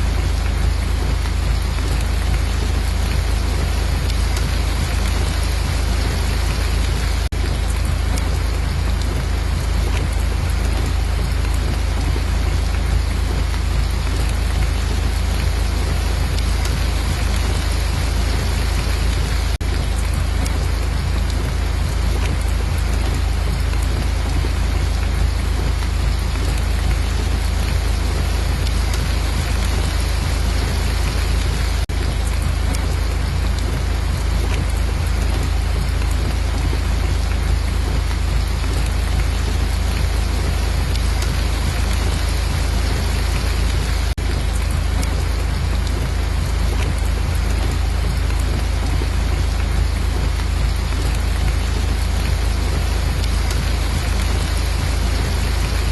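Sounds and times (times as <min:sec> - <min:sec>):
heavy rain: 0:00.0 - 0:55.9.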